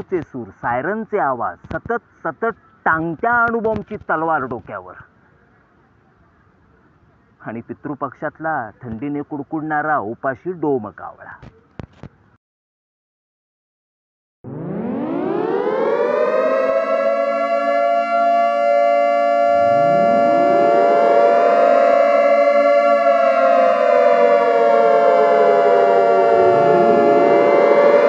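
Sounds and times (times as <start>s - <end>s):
air-raid sirens wailing: 0.0s - 1.0s, 14.5s - 28.0s.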